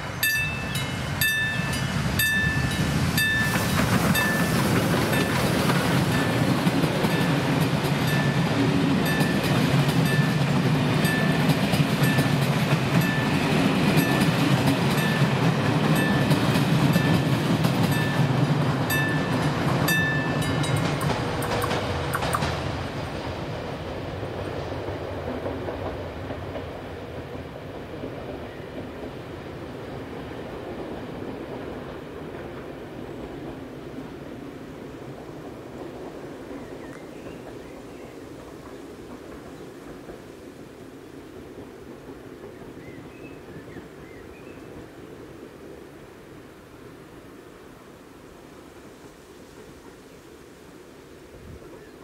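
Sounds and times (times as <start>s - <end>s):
crossing warning bell dinging: 0.0s - 22.5s
train wheels clattering over rail joints: 0.2s - 23.0s, 35.6s - 40.8s.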